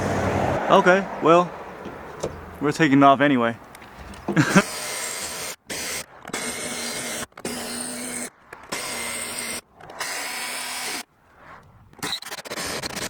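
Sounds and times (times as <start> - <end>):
power drill drilling: 4.4 - 11.1, 12.0 - 13.0.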